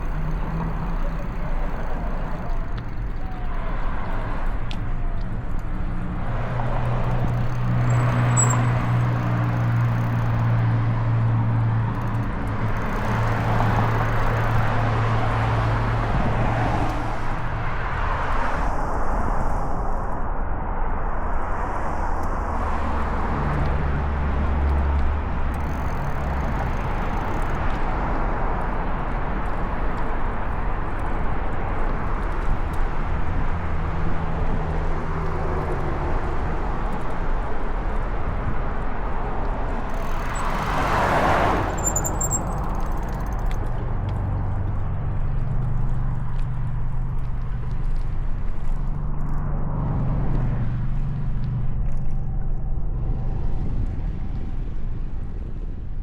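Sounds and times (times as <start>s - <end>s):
street traffic: 0.0s - 56.0s
vehicle passing close: 39.5s - 43.6s.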